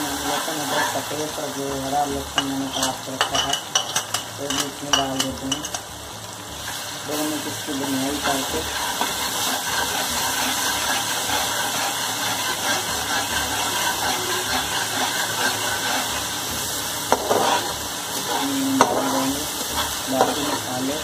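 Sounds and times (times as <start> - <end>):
vegetables sizzling in pan: 0.0 - 21.0
spatula stirring: 7.7 - 21.0.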